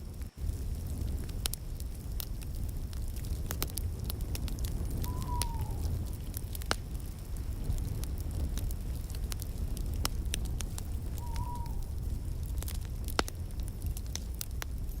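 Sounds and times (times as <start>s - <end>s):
low rumble of flames: 0.0s - 15.0s
wood fire crackling: 0.0s - 15.0s
faint whistle: 5.0s - 5.9s, 11.1s - 12.0s.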